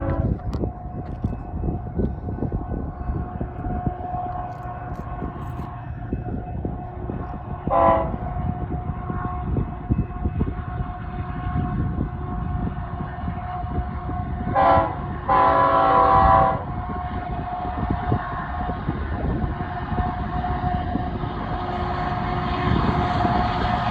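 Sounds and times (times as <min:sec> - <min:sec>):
train horn blast: 0:00.0 - 0:00.5, 0:07.6 - 0:12.6, 0:13.3 - 0:16.8
train wheels rumbling: 0:00.0 - 0:23.9.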